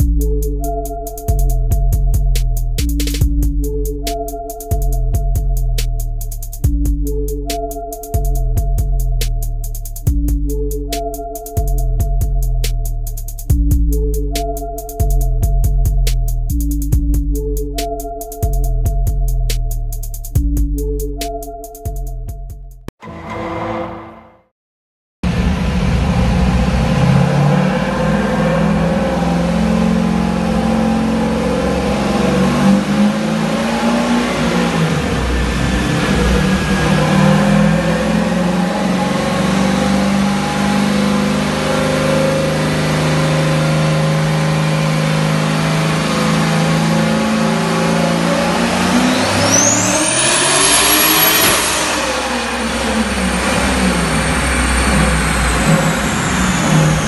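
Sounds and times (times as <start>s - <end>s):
car engine running under load: 25.2s - 57.0s
high turbo whistle: 25.4s - 43.1s, 44.4s - 57.0s.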